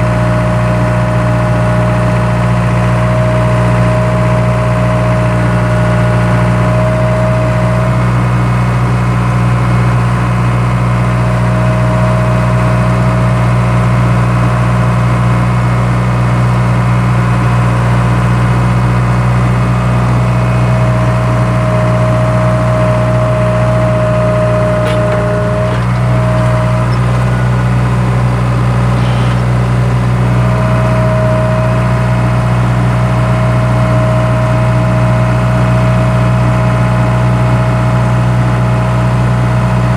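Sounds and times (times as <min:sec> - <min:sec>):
skid steer engine running: 0:00.0 - 0:39.9
high mechanical whine: 0:17.0 - 0:37.8.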